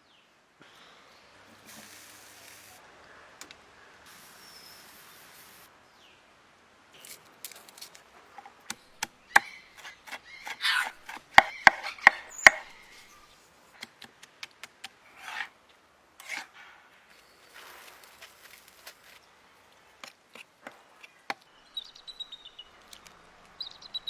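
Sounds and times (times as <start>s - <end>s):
knife scraping: 7.0s - 14.1s, 14.7s - 15.6s, 16.2s - 16.6s
knife chopping on wooden board: 8.7s - 12.9s.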